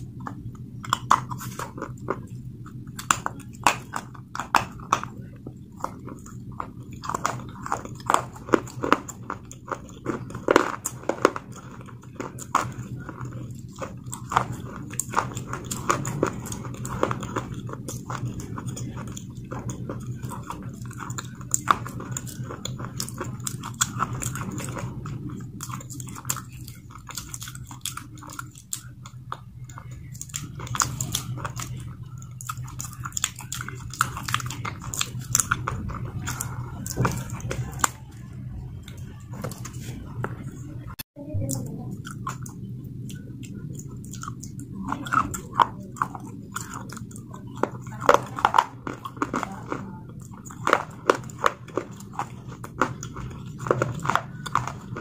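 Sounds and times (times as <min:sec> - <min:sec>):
steady low hum: 0:00.0 - 0:55.0
wet chewing mouth sounds: 0:00.0 - 0:55.0.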